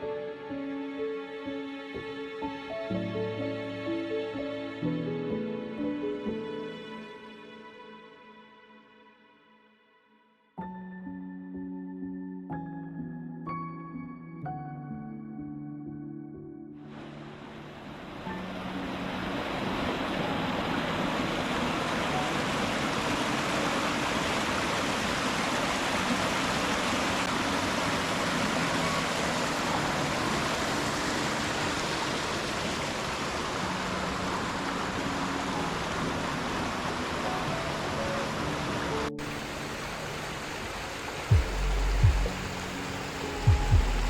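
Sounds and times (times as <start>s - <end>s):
stream water rushing: 16.9s - 44.0s.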